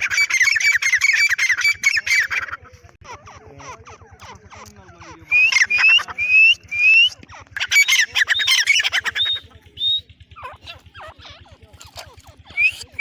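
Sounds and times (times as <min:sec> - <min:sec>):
harsh chattering bird calls: 0:00.0 - 0:13.0
rising whistled bird notes: 0:05.3 - 0:10.1.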